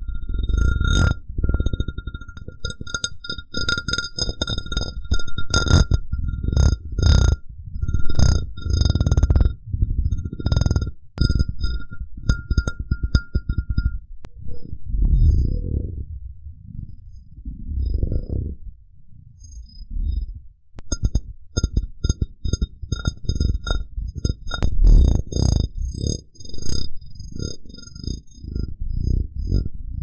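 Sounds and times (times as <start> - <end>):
glass rubbing and scraping: 0.0 - 14.0, 20.9 - 26.3
glass cup ringing from taps: 11.2 - 14.0.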